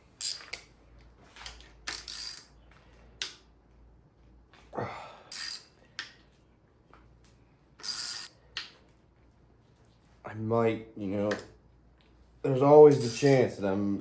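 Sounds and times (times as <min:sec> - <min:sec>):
metal parts clinking: 0:00.1 - 0:00.7, 0:01.4 - 0:02.5, 0:05.3 - 0:05.8, 0:07.8 - 0:08.4, 0:12.9 - 0:13.5
hand ratchet clicking: 0:05.3 - 0:05.6.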